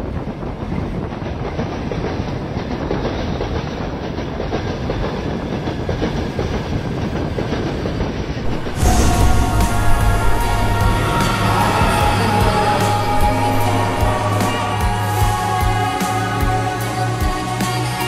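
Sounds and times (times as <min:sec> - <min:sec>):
train rumbling on rails: 0:00.0 - 0:18.0
music: 0:08.3 - 0:18.0.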